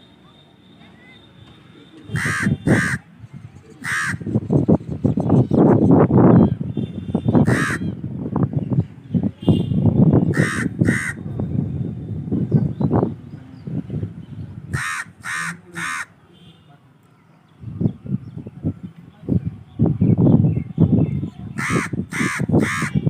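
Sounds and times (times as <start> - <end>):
crow cawing: 2.2 - 3.0, 3.8 - 4.2, 7.4 - 7.8, 10.4 - 11.2, 14.7 - 16.1, 21.6 - 22.9.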